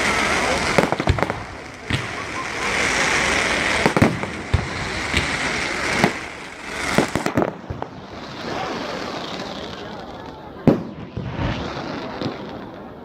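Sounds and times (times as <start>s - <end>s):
fireworks bangs: 0.0s - 13.0s
fireworks hiss: 0.0s - 13.0s.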